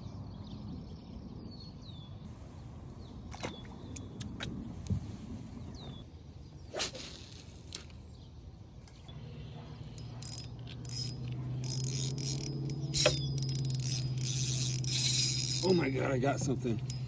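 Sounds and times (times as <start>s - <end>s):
fishing reel gear whir: 6.7s - 7.9s, 9.2s - 17.0s
fishing reel clicks: 9.9s - 16.1s, 16.8s - 17.0s.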